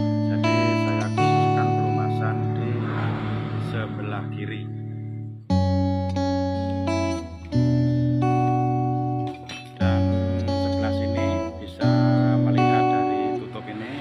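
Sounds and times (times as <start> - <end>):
guitar chords ringing: 0.0 - 14.0.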